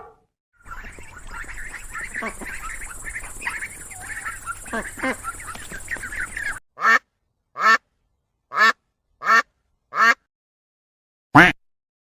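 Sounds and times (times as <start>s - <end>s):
background noise: 0.0s - 10.2s
ducks quacking: 0.6s - 7.0s, 8.5s - 10.2s.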